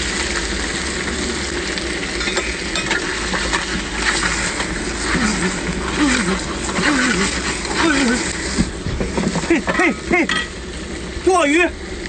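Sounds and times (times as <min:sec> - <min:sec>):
seafood sizzling in a wok: 0:00.0 - 0:12.0.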